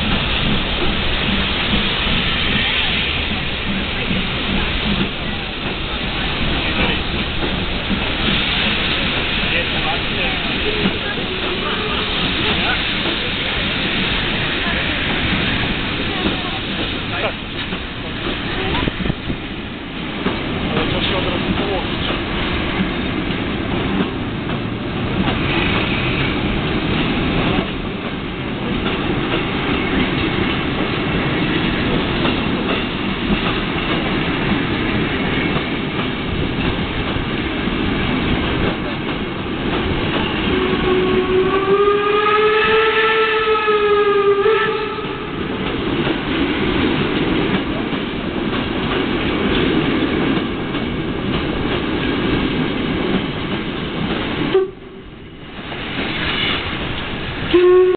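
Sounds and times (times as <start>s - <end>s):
train wheels clattering over rails: 0.0s - 41.8s, 44.6s - 57.6s
train whistle blowing: 40.3s - 45.4s, 54.5s - 55.0s, 57.5s - 57.9s.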